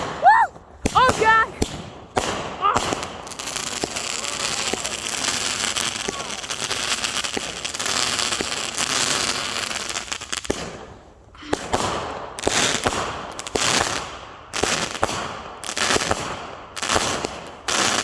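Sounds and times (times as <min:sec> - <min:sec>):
fireworks crackling: 0:00.0 - 0:18.0
firework bangs with hiss: 0:00.8 - 0:18.0.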